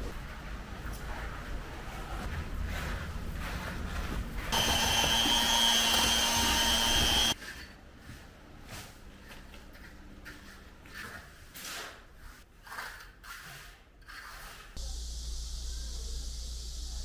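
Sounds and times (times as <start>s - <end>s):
power tool motor whining: 4.5s - 7.4s.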